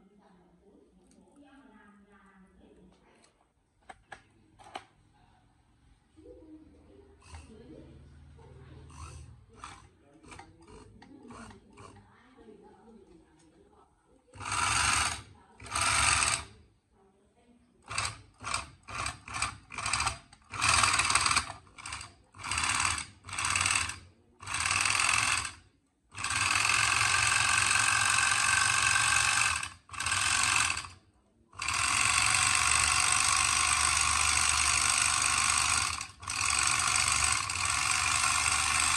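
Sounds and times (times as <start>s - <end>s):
industrial sewing machine running: 6.3s - 12.1s, 14.3s - 16.6s, 17.8s - 38.9s.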